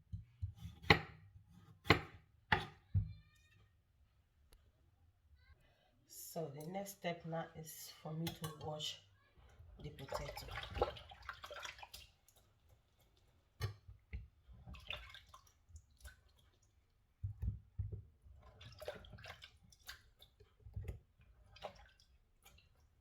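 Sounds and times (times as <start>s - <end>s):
water splashing and dripping: 9.8s - 23.0s.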